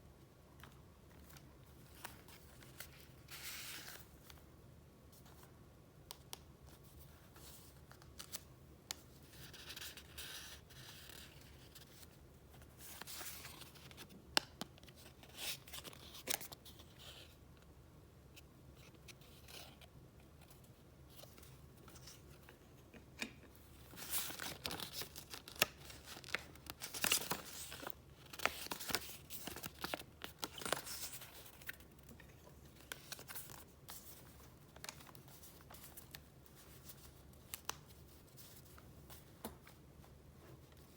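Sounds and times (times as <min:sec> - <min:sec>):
paper rustling and crinkling: 0:23.6 - 0:40.9.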